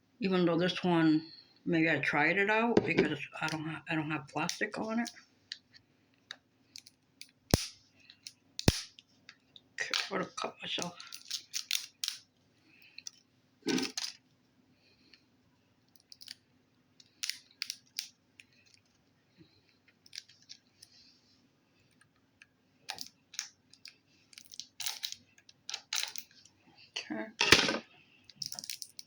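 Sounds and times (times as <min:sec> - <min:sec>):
sharp plastic snaps: 0:06.8 - 0:09.0, 0:11.1 - 0:12.2.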